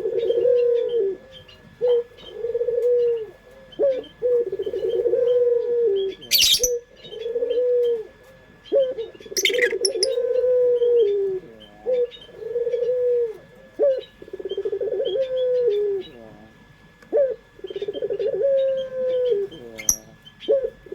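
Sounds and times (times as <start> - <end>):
dove cooing: 0.0 - 20.9
faint high chirps: 6.3 - 6.8, 9.4 - 10.2, 19.8 - 20.1.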